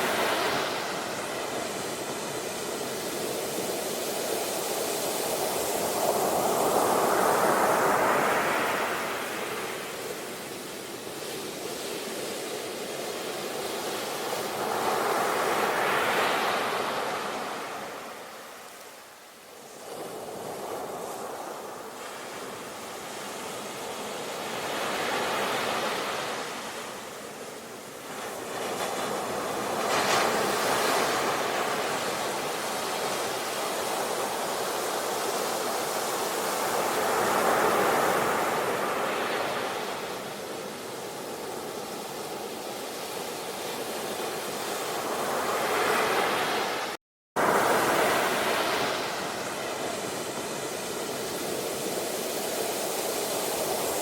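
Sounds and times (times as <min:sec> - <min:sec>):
ocean waves breaking: 0:00.0 - 0:03.7, 0:28.0 - 0:54.0.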